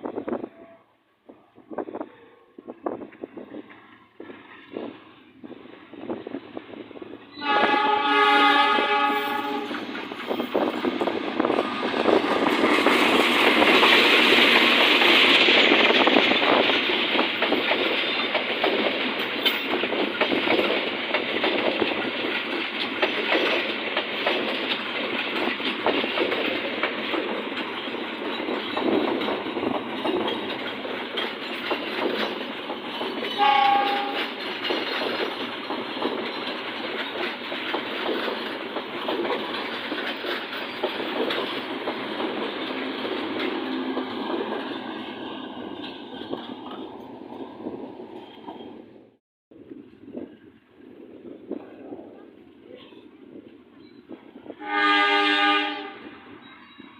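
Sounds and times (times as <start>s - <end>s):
train passing with rumble: 0.0s - 56.9s
locomotive horn: 0.4s - 1.0s, 7.4s - 9.8s, 33.4s - 34.3s, 54.6s - 56.3s
wheels clattering over rail joints: 8.6s - 48.9s.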